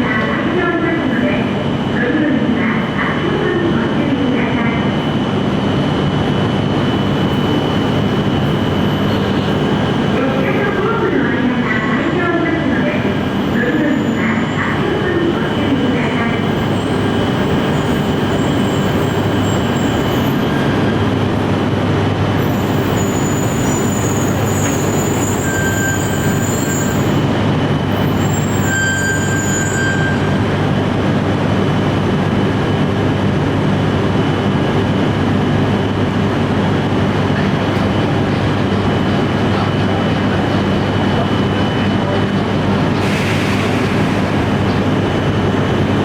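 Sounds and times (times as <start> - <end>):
high-pitched wheel squeals: 22.4 - 27.2, 28.0 - 30.4.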